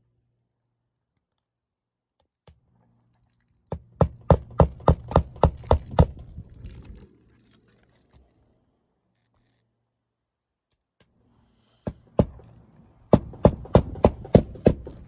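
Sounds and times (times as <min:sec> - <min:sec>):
hammer striking nail: 0:03.7 - 0:06.2, 0:11.9 - 0:12.4, 0:13.1 - 0:15.0.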